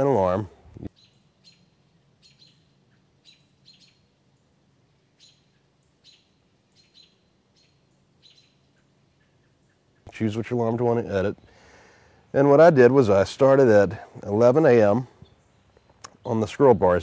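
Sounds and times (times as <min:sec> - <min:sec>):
faint bird chirps: 0:00.9 - 0:10.1, 0:15.1 - 0:16.0.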